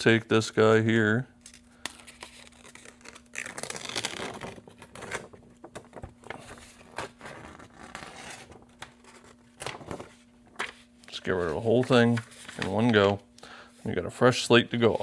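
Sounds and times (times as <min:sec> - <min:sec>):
paper tearing and crinkling: 0:01.5 - 0:13.2.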